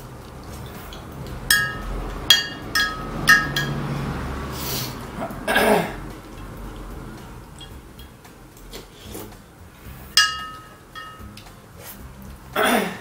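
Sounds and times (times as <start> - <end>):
metal utensil clinking on bowl: 0.9 - 4.0, 10.2 - 11.5.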